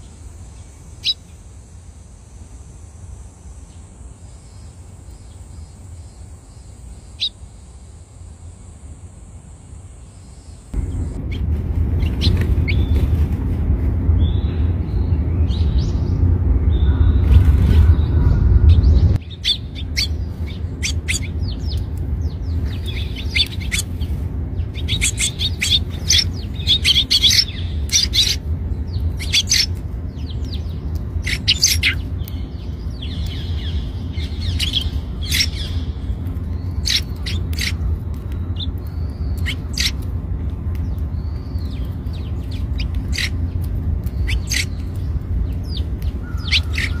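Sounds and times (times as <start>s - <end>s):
steady low rumble: 0.0s - 47.0s
sparrow chirping: 0.6s - 1.4s, 4.4s - 7.4s, 17.8s - 40.1s, 40.8s - 47.0s.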